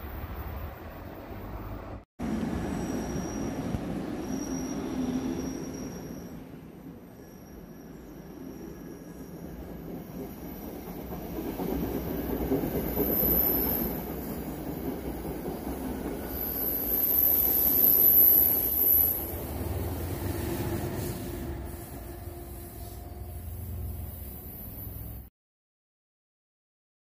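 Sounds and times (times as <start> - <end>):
electric locomotive passing: 0.0 - 25.3
high-pitched wheel squeal: 2.6 - 11.4, 16.2 - 25.2
train wheels rumbling on rails: 8.3 - 25.3.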